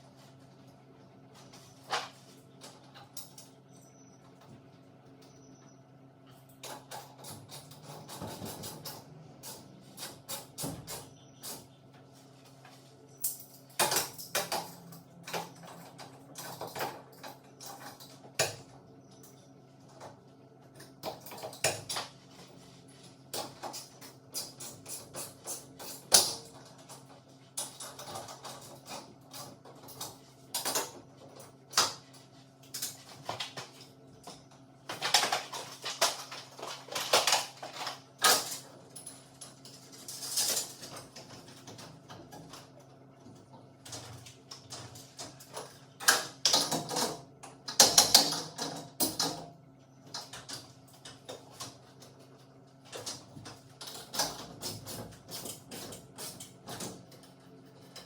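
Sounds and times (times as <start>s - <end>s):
tools and metal hardware clinking: 1.7s - 3.9s, 13.1s - 18.7s, 35.0s - 42.6s.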